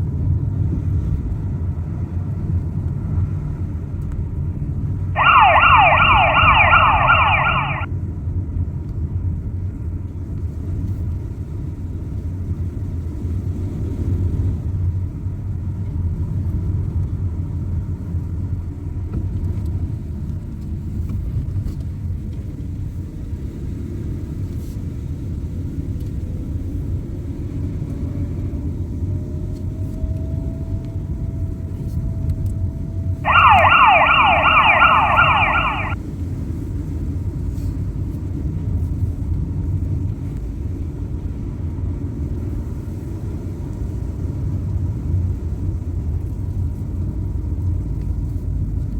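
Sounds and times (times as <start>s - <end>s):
fire engine siren yelping: 5.2s - 7.9s, 33.2s - 36.0s.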